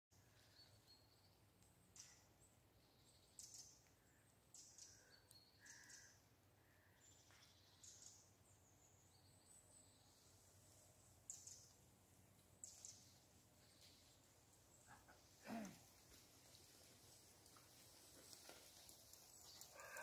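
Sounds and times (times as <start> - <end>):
faint bird chirps: 0.2 - 10.5, 18.0 - 20.0.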